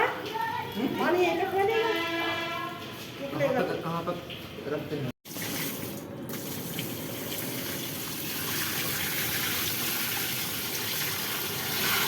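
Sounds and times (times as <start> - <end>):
water gushing into washing machine: 5.3 - 12.0.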